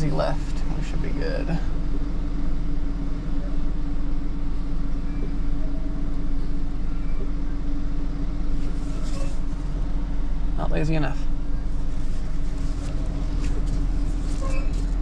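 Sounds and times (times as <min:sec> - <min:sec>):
truck engine humming: 0:00.0 - 0:15.0.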